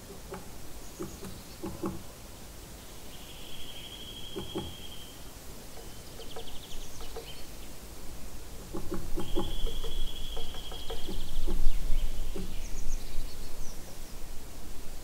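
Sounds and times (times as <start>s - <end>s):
bird whistling and trilling: 9.2s - 11.4s.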